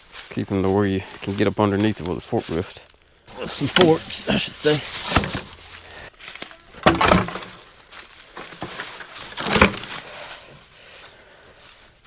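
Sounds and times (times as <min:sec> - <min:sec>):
firewood clattering and crunching: 0:03.3 - 0:10.8.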